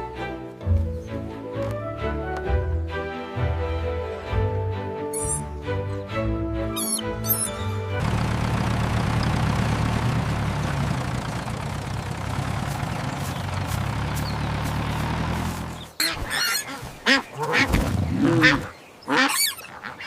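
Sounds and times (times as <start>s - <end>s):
ducks quacking and honking: 6.7s - 7.9s, 15.9s - 20.0s
tractor engine running: 6.8s - 16.0s.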